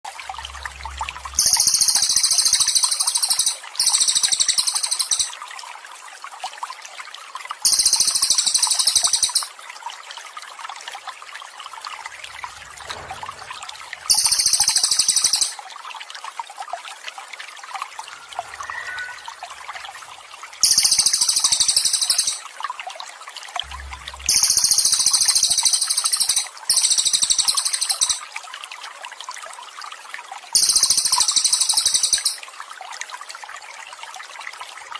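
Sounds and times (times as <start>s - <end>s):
running water trickling: 0.0s - 34.9s
songbird trilling: 1.3s - 5.3s, 7.7s - 9.5s, 14.1s - 15.6s, 18.2s - 19.6s, 20.6s - 22.4s.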